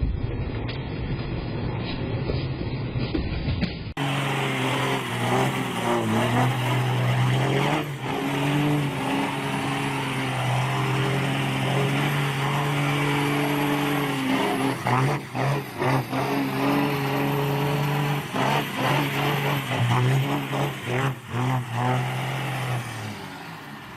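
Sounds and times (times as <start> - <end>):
vehicle engine running: 3.8 - 22.8.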